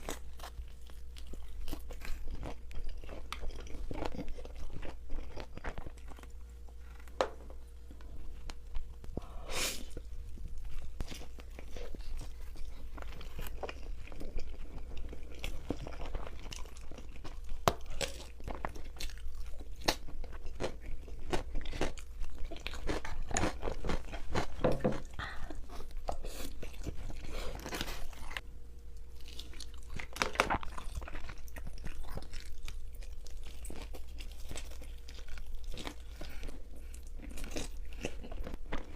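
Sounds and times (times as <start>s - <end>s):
crunching and chewing: 0.0s - 9.1s, 9.8s - 38.9s
biting crunchy food: 10.7s - 28.4s, 29.1s - 38.9s.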